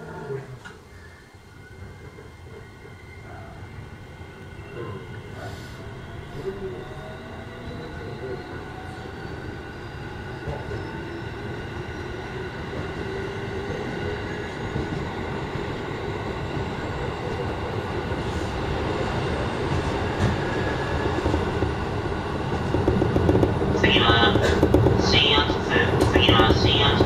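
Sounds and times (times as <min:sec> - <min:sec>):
wheels rumbling on rails: 0:16.4 - 0:27.0.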